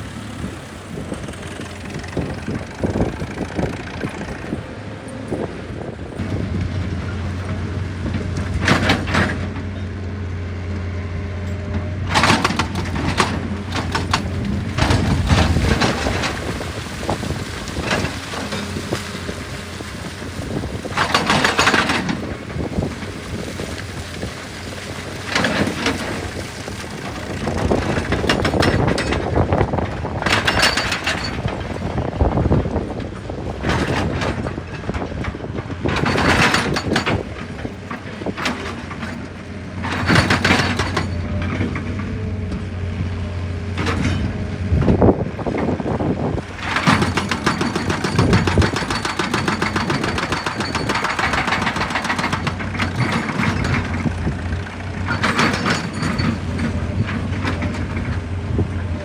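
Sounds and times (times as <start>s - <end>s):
rapid clicking and rattling: 0.0s - 4.9s, 12.1s - 19.1s, 20.6s - 24.4s, 25.0s - 41.6s, 46.6s - 58.3s
diesel engine under load: 0.0s - 59.0s.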